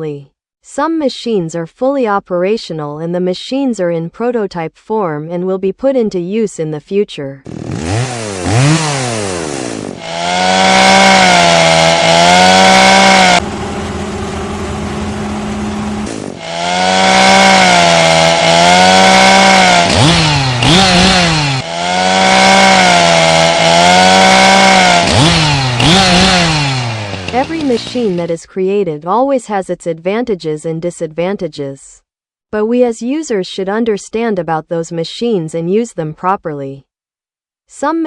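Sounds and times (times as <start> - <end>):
chainsaw engine revving: 7.4 - 28.3.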